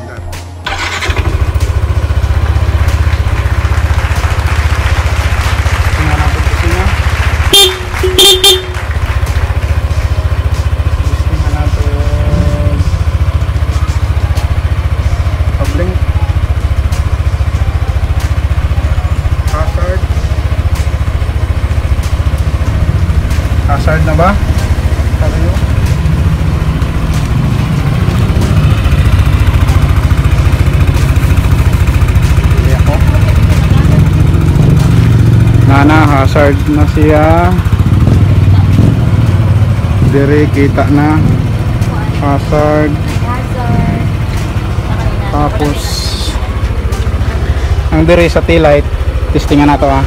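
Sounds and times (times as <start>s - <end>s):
scooter engine idling: 0.5s - 50.0s
short horn beeps: 7.5s - 8.9s.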